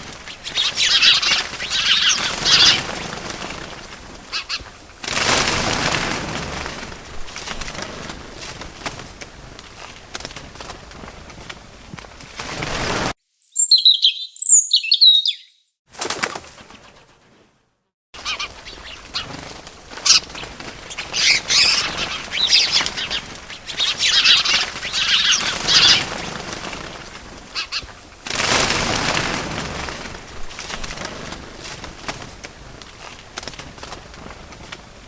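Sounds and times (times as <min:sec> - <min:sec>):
bird wings flapping: 0:00.0 - 0:13.2, 0:15.9 - 0:35.0
high bird chirps: 0:00.4 - 0:02.8, 0:13.2 - 0:15.8.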